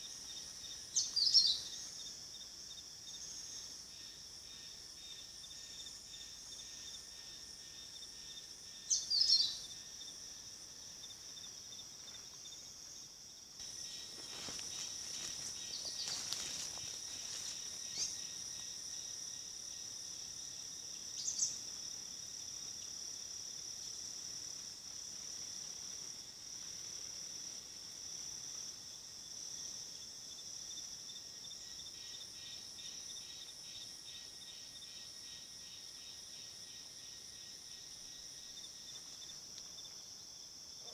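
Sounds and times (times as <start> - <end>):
insects droning: 0.0 - 40.9
rustling: 13.7 - 18.2.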